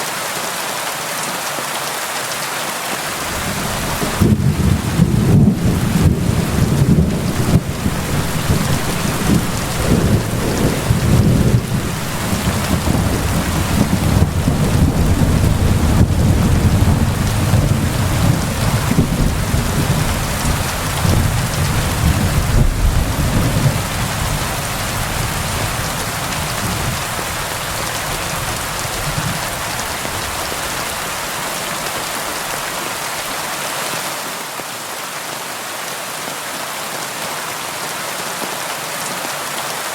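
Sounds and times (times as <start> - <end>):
steady rain falling: 0.0 - 39.9
rolling thunder rumble: 3.2 - 30.9.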